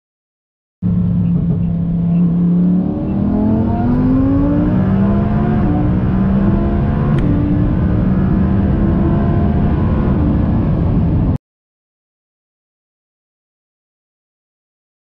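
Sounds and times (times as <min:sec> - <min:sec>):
car engine accelerating: 0:00.8 - 0:11.4.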